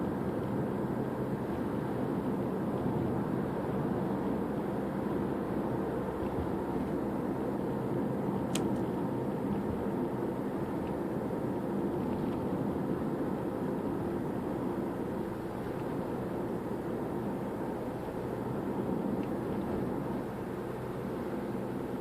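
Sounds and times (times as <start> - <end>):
car engine and road noise: 0.0 - 22.0
sharp click: 8.5 - 8.8.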